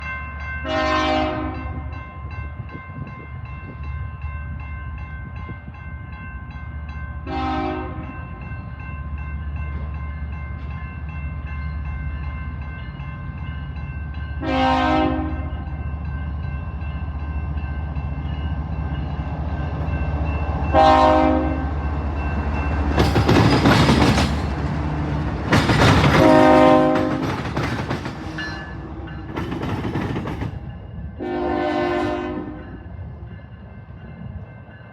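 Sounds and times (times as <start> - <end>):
diesel locomotive engines: 0.0 - 34.9
train horn blasts: 0.6 - 1.9, 7.3 - 8.1, 14.4 - 15.6, 20.7 - 21.7, 26.0 - 27.4, 31.2 - 32.8.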